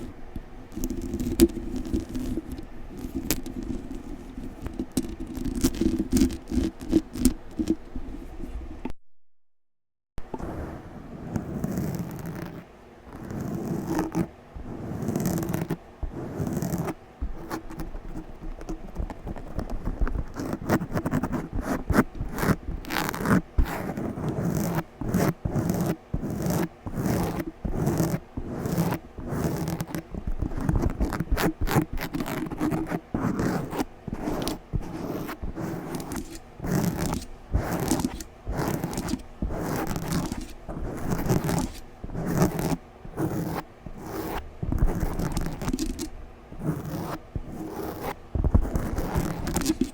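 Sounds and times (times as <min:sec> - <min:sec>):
microphone being scratched: 0:27.4 - 0:49.9.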